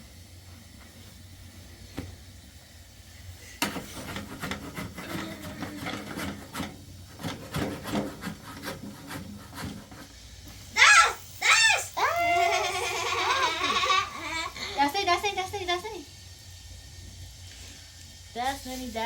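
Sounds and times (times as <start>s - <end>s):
rubbing and scraping against wood: 3.7s - 10.1s
high squealing voice crying out: 10.8s - 13.4s.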